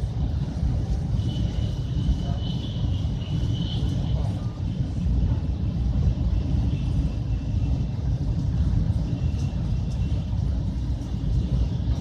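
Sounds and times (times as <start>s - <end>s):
train rumble inside carriage: 0.0s - 12.0s.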